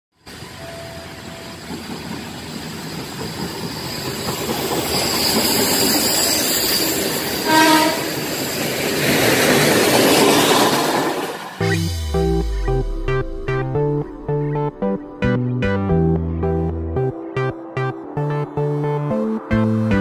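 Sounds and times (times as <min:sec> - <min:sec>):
train running on rails: 0:00.2 - 0:13.2
train horn blast: 0:07.4 - 0:08.2.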